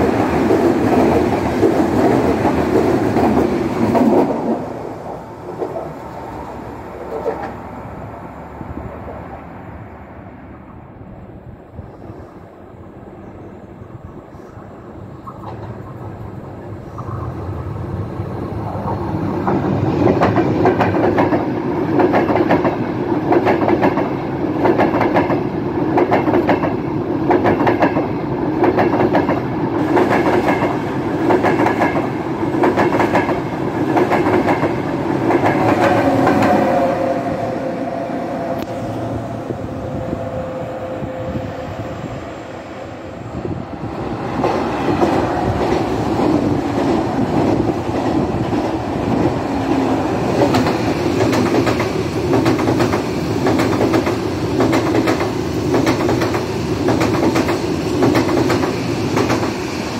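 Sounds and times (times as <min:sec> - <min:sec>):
another train running: 0:00.0 - 0:59.9
steady tone: 0:35.3 - 0:45.3
train wheels clattering over rail joints: 0:44.4 - 0:59.6.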